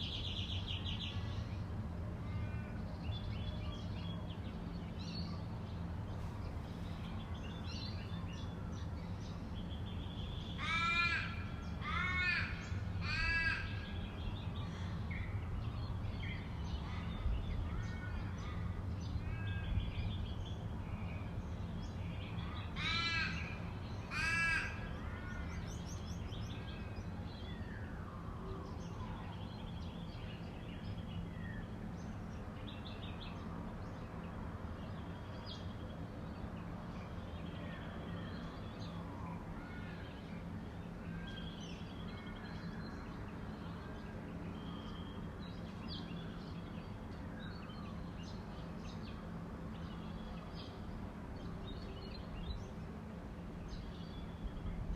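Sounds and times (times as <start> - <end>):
crow cawing: 10.6 - 13.9, 22.8 - 25.4.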